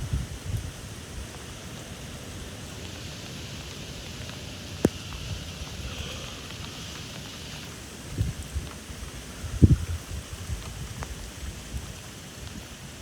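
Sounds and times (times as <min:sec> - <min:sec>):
rain in gusty wind: 0:00.0 - 0:13.0.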